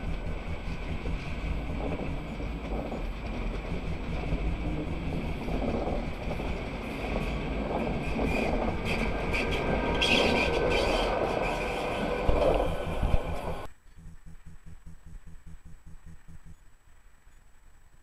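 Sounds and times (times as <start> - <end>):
train wheels rushing on rails: 0.0 - 13.7
high wheel squeal: 6.9 - 13.7.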